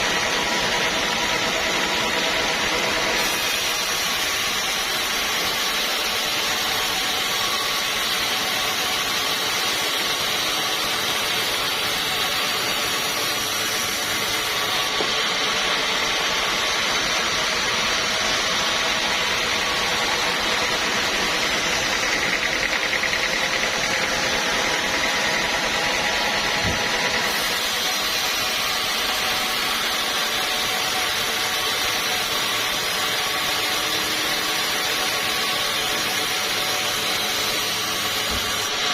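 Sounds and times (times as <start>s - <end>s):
sawmill machinery droning: 0.0s - 38.9s.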